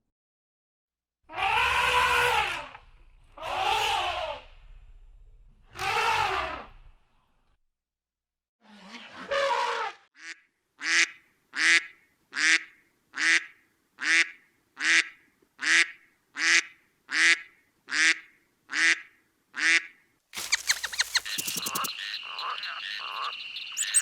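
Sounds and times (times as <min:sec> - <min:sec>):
waterfowl calling: 0:20.4 - 0:24.0.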